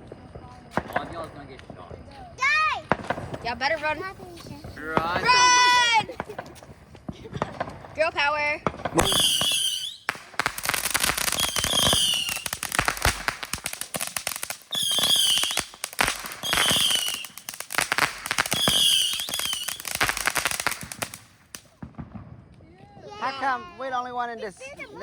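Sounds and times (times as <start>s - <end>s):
fireworks crackling: 0.0s - 25.0s
high wavering firework whistles: 9.0s - 21.9s, 23.2s - 24.8s.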